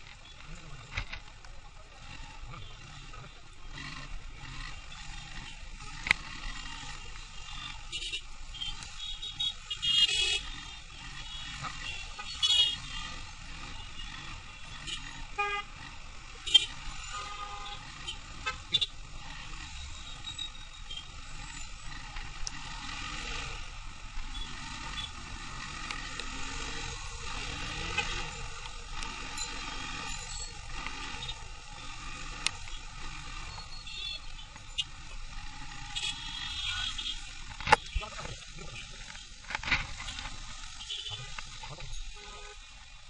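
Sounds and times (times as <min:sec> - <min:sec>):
road noise: 0:00.0 - 0:43.0
vehicle horns honking: 0:06.8 - 0:19.0, 0:24.3 - 0:25.3, 0:29.2 - 0:39.4, 0:40.0 - 0:42.8.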